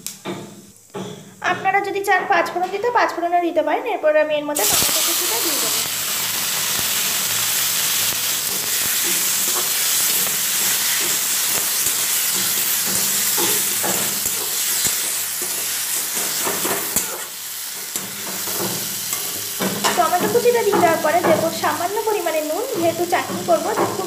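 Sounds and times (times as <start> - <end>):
tomatoes sizzling in hot oil: 4.5 - 24.0
metal spatula scraping a pan: 7.5 - 21.8.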